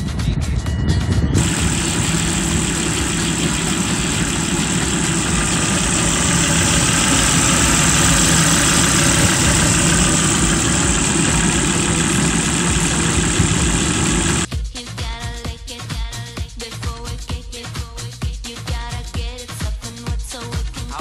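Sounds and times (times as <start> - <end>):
car engine idling: 1.4 - 14.5.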